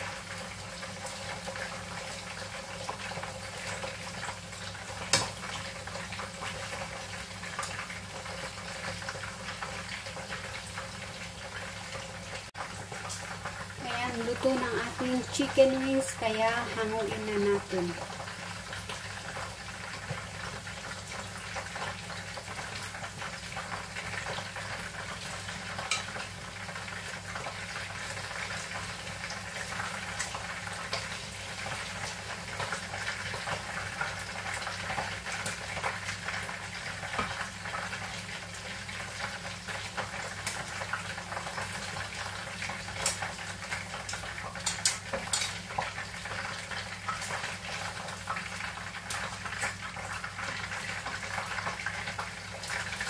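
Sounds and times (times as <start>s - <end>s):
chicken frying in hot oil: 0.0s - 53.0s
metal tongs clicking on pan: 25.9s - 26.1s, 44.6s - 45.6s.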